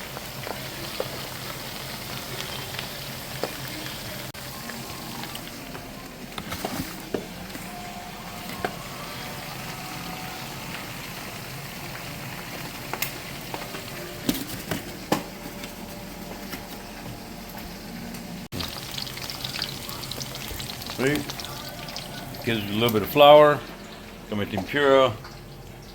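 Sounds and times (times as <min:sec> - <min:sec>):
food sizzling in hot oil: 0:00.0 - 0:05.8, 0:07.7 - 0:14.0, 0:18.5 - 0:24.3.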